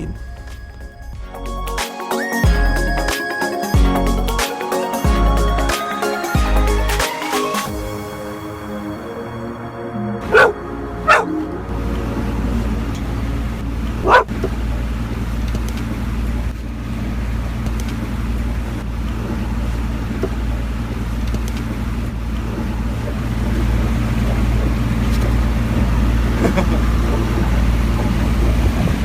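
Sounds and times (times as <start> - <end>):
boat engine humming: 7.6 - 16.2, 19.1 - 29.0
dog barking: 14.0 - 14.3.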